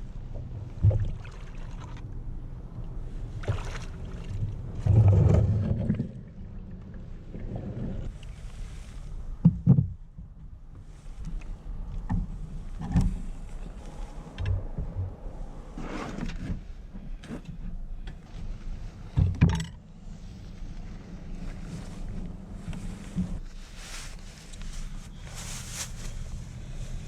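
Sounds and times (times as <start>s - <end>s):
steady low rumble: 0.0s - 27.0s
knocks and clunks on kayak: 9.4s - 10.5s, 19.2s - 19.8s.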